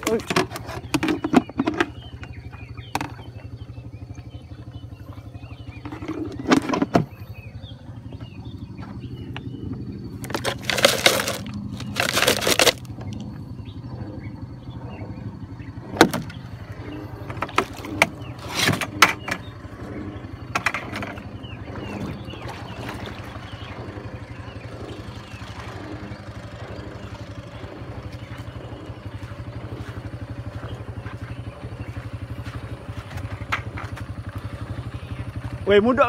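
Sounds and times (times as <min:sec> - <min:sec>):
sharp knocks and clatters: 0:00.0 - 0:03.3
small engine idling: 0:00.0 - 0:36.0.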